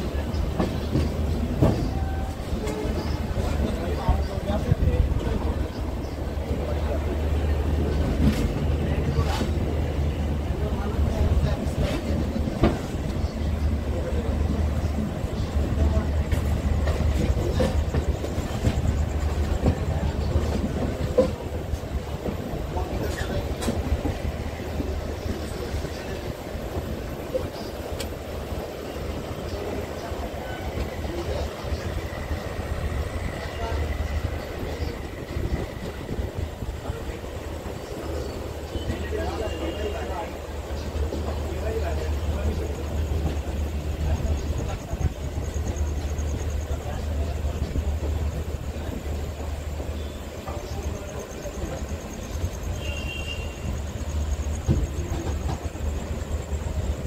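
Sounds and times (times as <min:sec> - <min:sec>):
train knock: 0:00.0 - 0:05.6, 0:10.6 - 0:28.2, 0:49.6 - 0:57.0
train coaches rumbling: 0:00.0 - 0:57.0.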